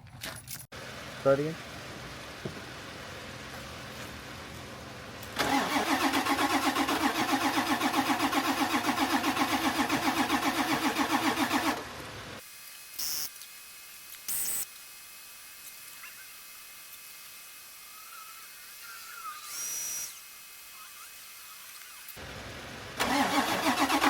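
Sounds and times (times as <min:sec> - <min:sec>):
truck engine cranking: 0:05.2 - 0:11.9, 0:23.0 - 0:24.0.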